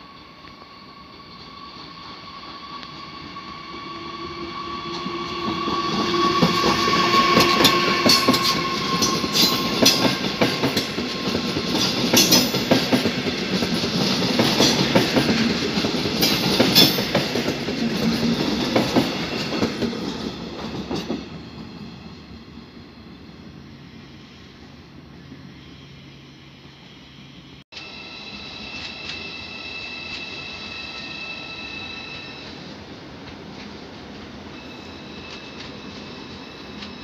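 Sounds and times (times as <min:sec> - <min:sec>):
train whine: 0:00.0 - 0:37.0
train wheels clicking over rail joints: 0:04.9 - 0:21.3.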